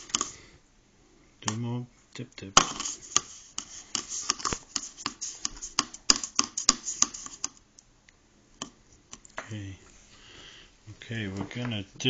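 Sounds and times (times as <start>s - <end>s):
paintbrush dabbing taps: 2.6s - 7.6s.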